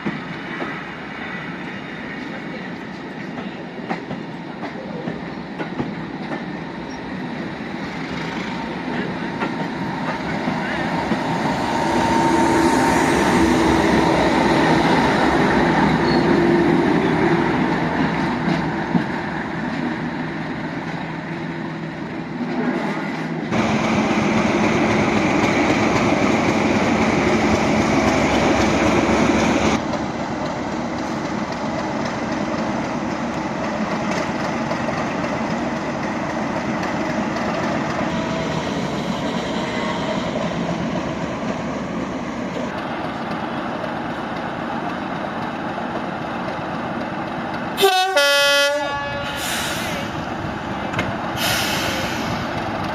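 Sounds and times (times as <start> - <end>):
diesel locomotive engine running: 23.5 - 48.4, 49.2 - 52.9.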